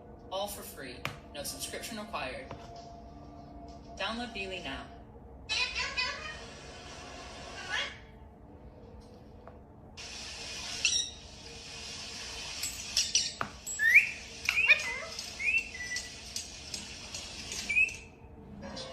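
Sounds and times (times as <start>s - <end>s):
parrot chirping and whistling: 10.6s - 11.3s, 12.8s - 16.3s, 17.5s - 18.2s.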